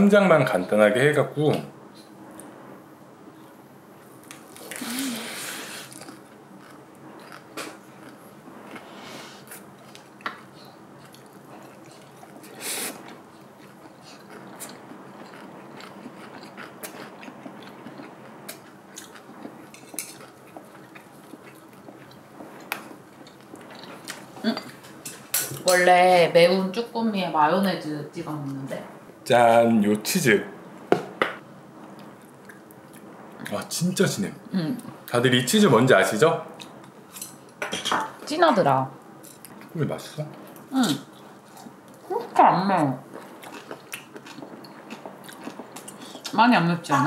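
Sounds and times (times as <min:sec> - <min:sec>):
close chewing with wet crunching: 0:05.9 - 0:08.9, 0:09.5 - 0:24.8, 0:43.0 - 0:46.4.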